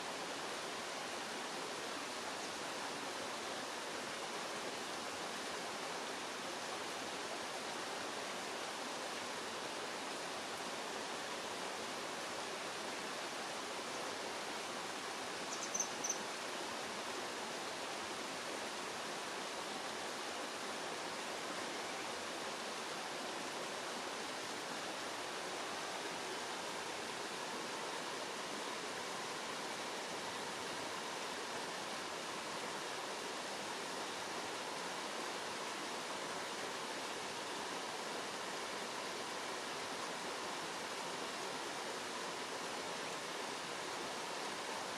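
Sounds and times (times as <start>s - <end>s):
running water rushing: 0.0s - 44.9s
kingfisher call: 15.5s - 16.2s.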